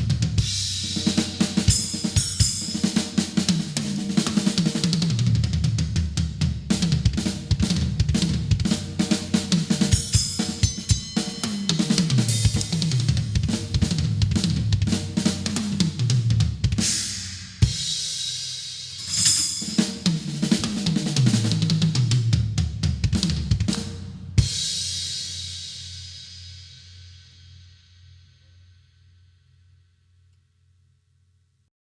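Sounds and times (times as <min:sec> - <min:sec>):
drum kit playing: 0:00.0 - 0:18.2, 0:18.8 - 0:25.2
cymbal crash ringing: 0:01.6 - 0:03.5, 0:10.0 - 0:13.4, 0:19.0 - 0:20.9.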